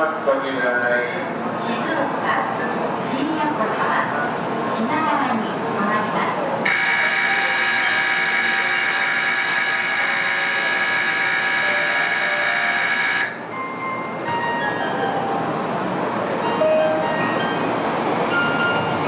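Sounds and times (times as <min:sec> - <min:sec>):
electric bell ringing: 0:06.7 - 0:15.3.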